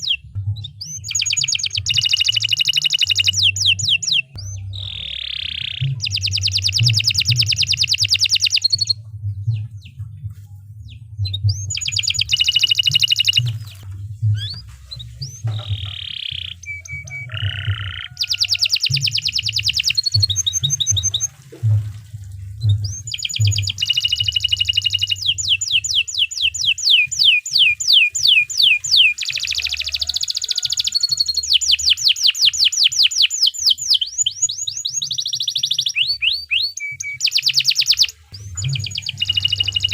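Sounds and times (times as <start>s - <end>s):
canary singing: 0.0s - 21.3s, 22.6s - 39.9s
low rumble: 0.1s - 1.2s, 8.9s - 18.1s, 19.6s - 24.4s, 38.3s - 39.9s.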